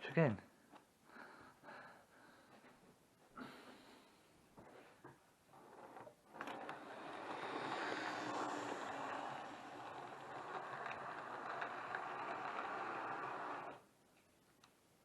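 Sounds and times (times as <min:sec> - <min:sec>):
model train motor whirring: 0:05.6 - 0:13.8
clicks over rail joints: 0:05.9 - 0:13.8.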